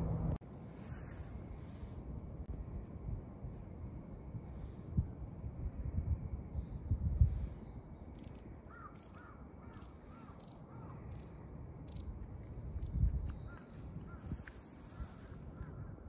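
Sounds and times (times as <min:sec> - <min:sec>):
wind rumble on microphone: 0:00.0 - 0:09.4, 0:10.1 - 0:16.0
bird calling: 0:08.2 - 0:12.2.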